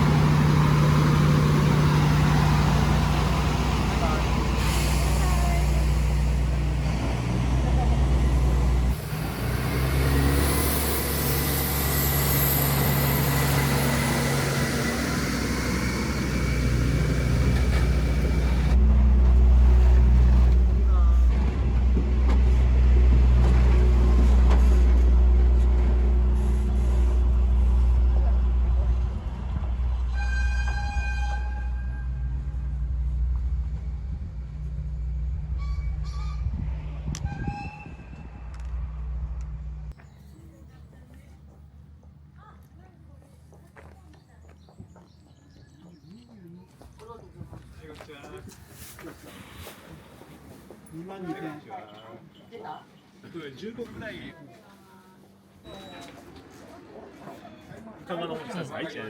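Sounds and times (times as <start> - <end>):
low engine hum: 0.0 - 30.1
vehicle travel noise: 0.0 - 58.9.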